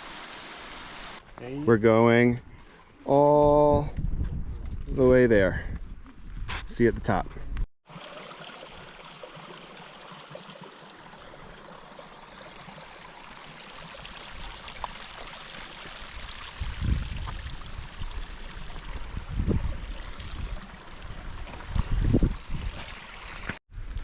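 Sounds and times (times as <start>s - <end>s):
running water rushing: 0.0s - 1.2s, 7.9s - 23.6s
wind buffeting microphone: 3.6s - 6.5s, 16.5s - 22.8s.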